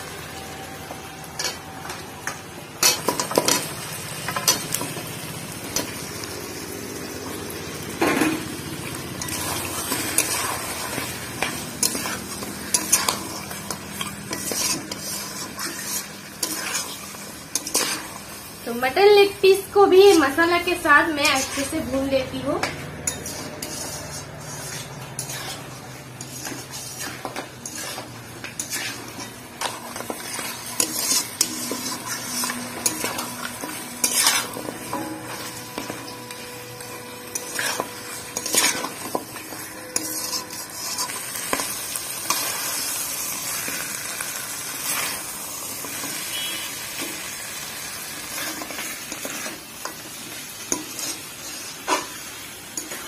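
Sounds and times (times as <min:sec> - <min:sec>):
meat sizzling in a pan: 0:00.0 - 0:53.0
spatula scraping a metal pan: 0:09.1 - 0:18.3, 0:19.9 - 0:47.2, 0:47.9 - 0:53.0.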